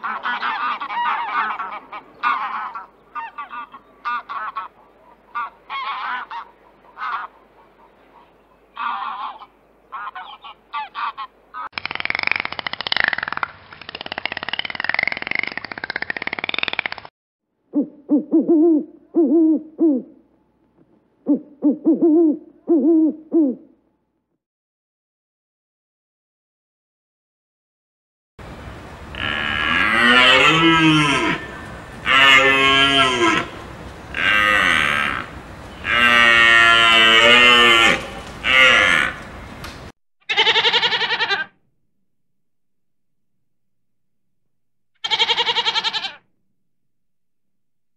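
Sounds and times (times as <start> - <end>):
owl hooting: 17.7 - 20.2, 21.2 - 23.7
goat bleating: 40.3 - 41.5, 45.0 - 46.2.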